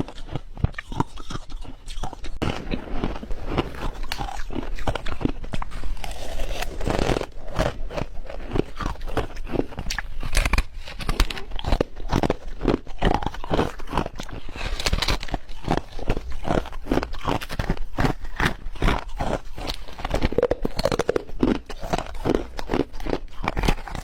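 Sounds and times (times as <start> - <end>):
ice being chewed: 0.0 - 24.0.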